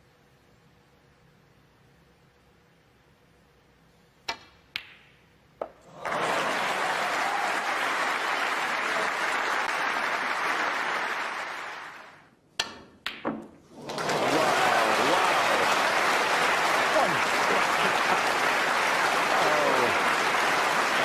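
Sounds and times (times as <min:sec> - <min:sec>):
audience applause: 0:05.8 - 0:12.2, 0:13.7 - 0:21.0
snooker balls clicking: 0:12.6 - 0:13.6.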